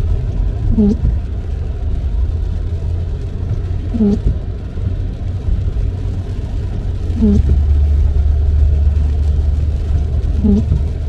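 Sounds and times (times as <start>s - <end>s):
car road and engine rumble: 0.0s - 11.0s
windshield wiper squeak: 0.7s - 1.2s, 3.5s - 4.4s, 7.2s - 7.6s, 10.4s - 10.9s.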